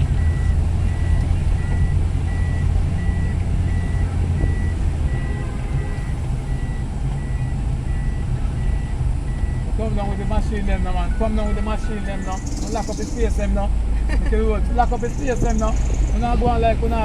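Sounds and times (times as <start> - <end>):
truck reversing alarm beeping: 0.0 - 13.5
heavy truck engines rumbling: 0.0 - 17.0.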